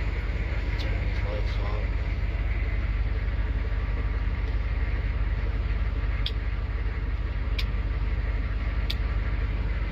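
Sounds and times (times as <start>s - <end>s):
diesel truck engine idling: 0.0s - 9.9s.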